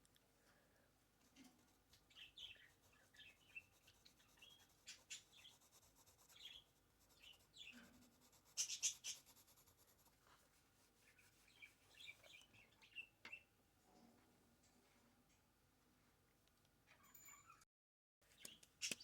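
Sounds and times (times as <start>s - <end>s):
scratchy drawing strokes: 1.5s - 12.2s
faint bird chirps: 1.6s - 9.6s, 11.0s - 13.6s, 17.0s - 17.6s.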